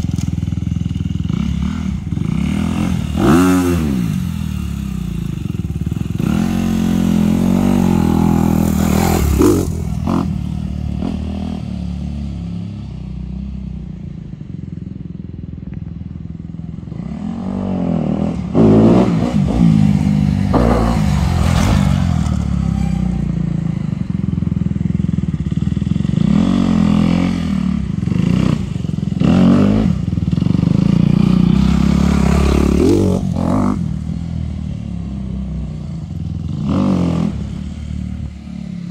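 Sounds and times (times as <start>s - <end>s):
dirt bike engine revving: 1.0s - 12.2s, 16.9s - 23.9s, 26.0s - 34.1s.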